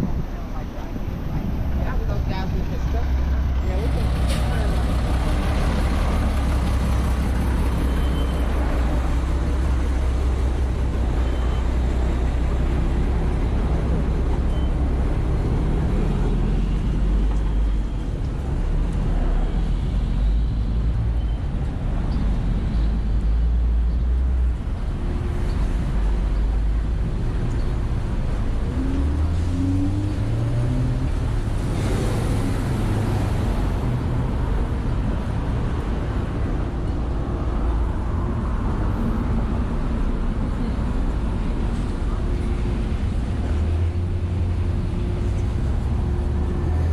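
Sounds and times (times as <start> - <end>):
wind buffeting microphone: 0.0 - 11.2
road traffic passing: 0.0 - 46.9.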